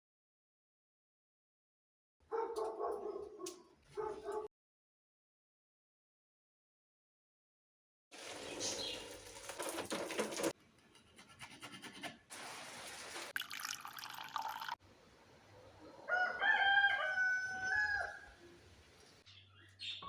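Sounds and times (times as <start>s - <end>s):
rooster crowing: 16.0s - 18.4s.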